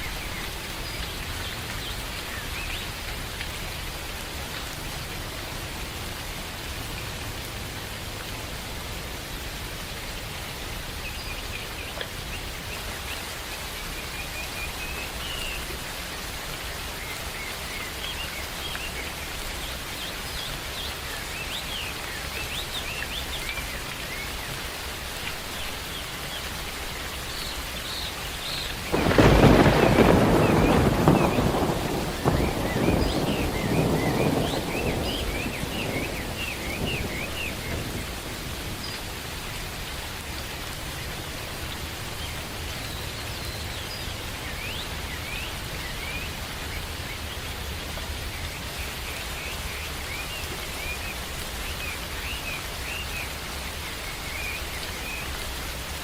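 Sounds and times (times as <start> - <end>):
steady rain in a forest: 0.0 - 56.0
loud thunder clap: 28.9 - 38.8.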